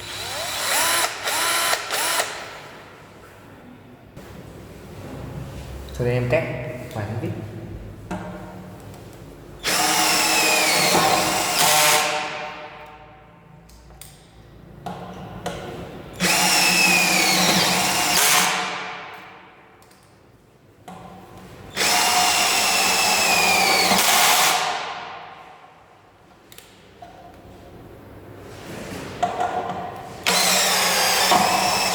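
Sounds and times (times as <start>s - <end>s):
cordless drill driving screws: 0.0s - 2.5s, 9.6s - 12.2s, 16.2s - 18.8s, 21.7s - 24.8s, 30.2s - 31.9s.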